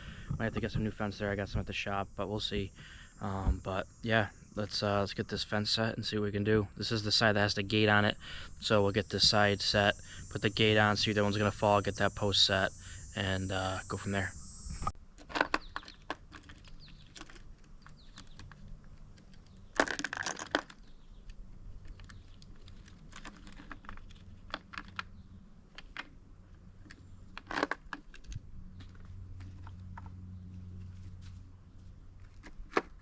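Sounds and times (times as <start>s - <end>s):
low steady hum: 0.0s - 15.2s.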